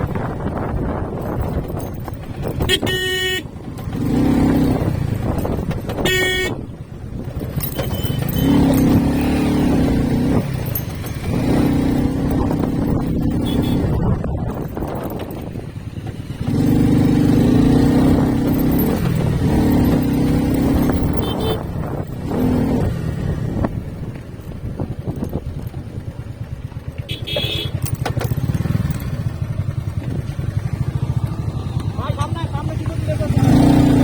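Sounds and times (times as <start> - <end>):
motorcycle engine: 0.0 - 34.0
horn-like note: 2.7 - 3.4.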